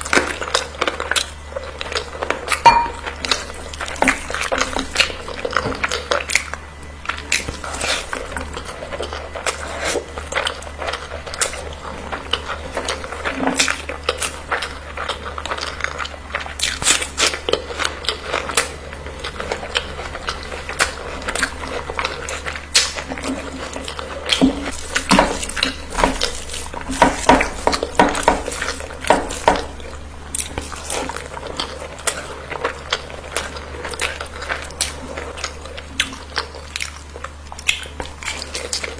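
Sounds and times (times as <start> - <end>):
chewing and biting: 0.0 - 38.9
dishes and cutlery clinking: 2.6 - 3.5.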